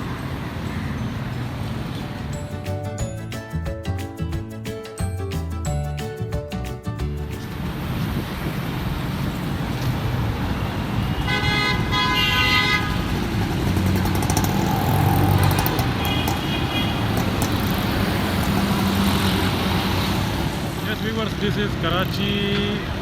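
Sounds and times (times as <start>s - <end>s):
road traffic: 0.0s - 23.0s
car horn honking: 10.6s - 13.2s, 15.3s - 17.2s.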